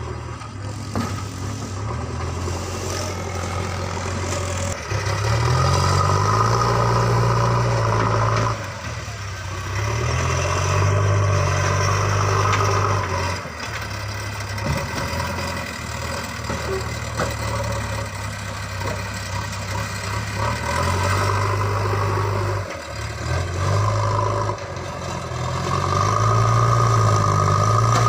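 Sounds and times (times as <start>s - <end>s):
diesel engine revving: 0.0s - 28.0s.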